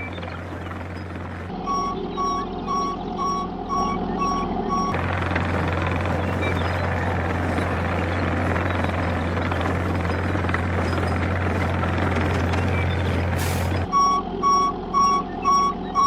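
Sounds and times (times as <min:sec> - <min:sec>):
reversing alarm beeping: 0:00.0 - 0:07.6, 0:12.6 - 0:16.0
heavy vehicle engine running: 0:00.0 - 0:16.0.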